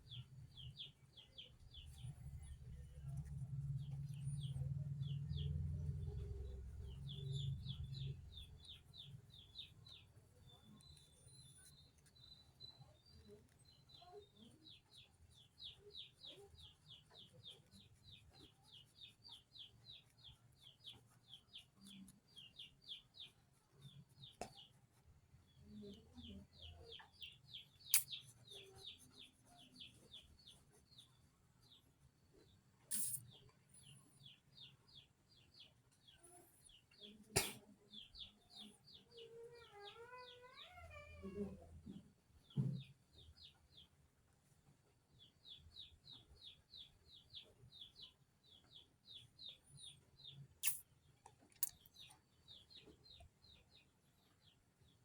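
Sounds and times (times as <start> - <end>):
small bird chirps: 0.0 - 44.1, 45.0 - 55.0
cat meowing: 39.5 - 41.6.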